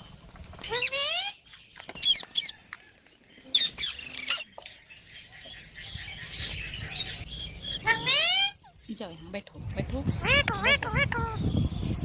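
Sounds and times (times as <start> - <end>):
parrots squawking: 7.8 - 8.8, 10.1 - 11.6.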